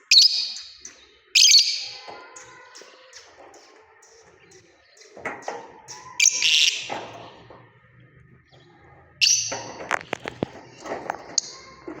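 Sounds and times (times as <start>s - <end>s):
lovebirds shrill calls: 0.0s - 7.0s, 9.2s - 11.7s.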